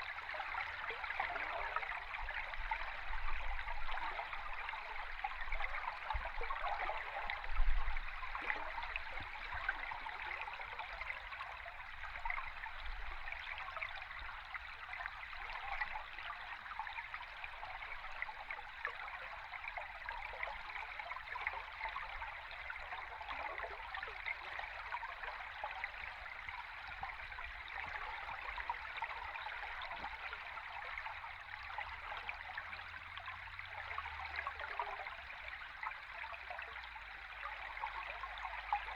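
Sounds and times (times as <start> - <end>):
underwater stream bubbling: 0.0 - 38.9.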